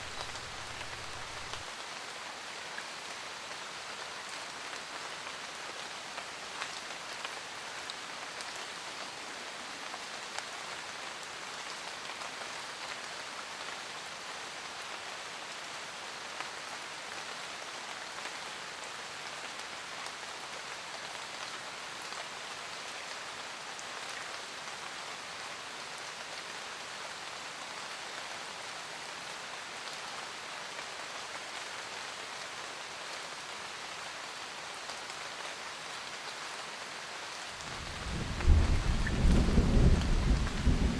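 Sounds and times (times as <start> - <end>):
single raindrops ticking: 0.0 - 1.6
rain pattering on a van roof: 0.0 - 9.0, 33.3 - 40.9.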